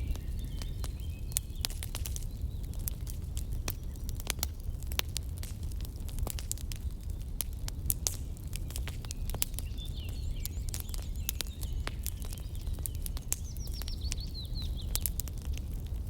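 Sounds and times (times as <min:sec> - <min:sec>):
campfire crackling and popping: 0:00.0 - 0:16.0
small bird chirping: 0:09.2 - 0:15.2.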